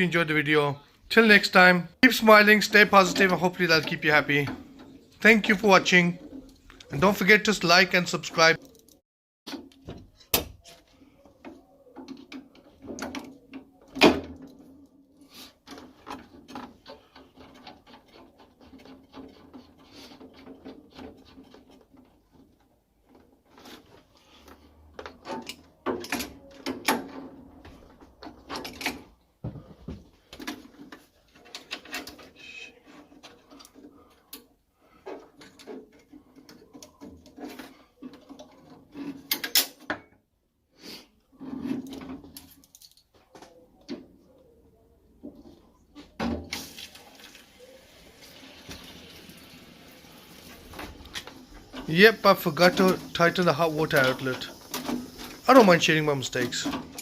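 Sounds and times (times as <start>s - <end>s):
tools and metal fittings clattering: 2.4s - 10.8s, 11.5s - 29.2s, 30.2s - 40.1s, 41.4s - 44.0s, 50.6s - 57.0s.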